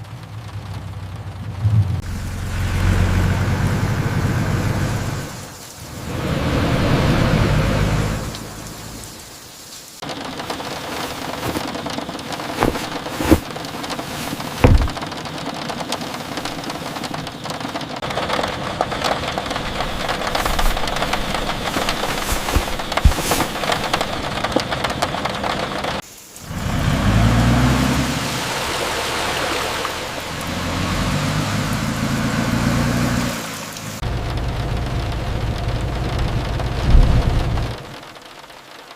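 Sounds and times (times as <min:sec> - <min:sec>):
deep rumble: 0:00.0 - 0:05.4, 0:34.0 - 0:37.9
rain on a surface: 0:00.0 - 0:38.9
deep low rumble: 0:34.2 - 0:37.8.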